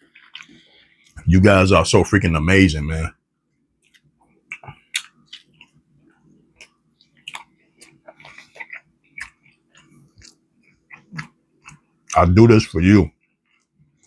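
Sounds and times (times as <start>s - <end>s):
chewing and biting fried chicken: 0.0s - 1.2s, 3.8s - 12.3s, 13.1s - 14.0s
faint steady hum: 0.0s - 14.0s.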